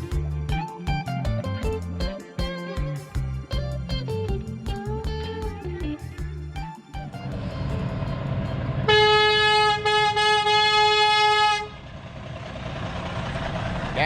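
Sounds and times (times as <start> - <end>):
farm machinery engines running: 7.1 - 9.7, 11.7 - 14.0
vehicle horn blast: 8.8 - 11.8.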